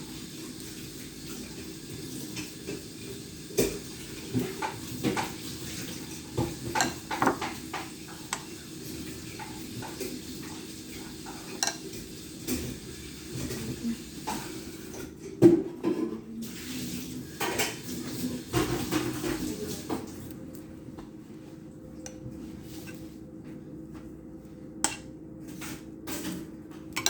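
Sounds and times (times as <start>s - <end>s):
utensils clinking against dishes: 3.6s - 16.2s, 24.8s - 27.0s.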